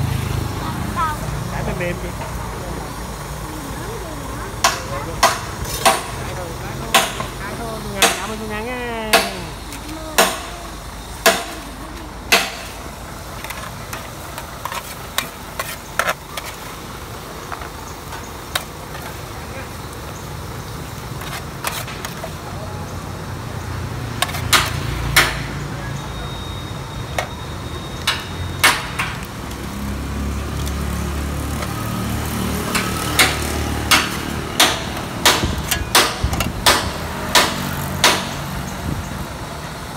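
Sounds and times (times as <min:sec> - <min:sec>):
sharp knocks: 0:32.8 - 0:38.5.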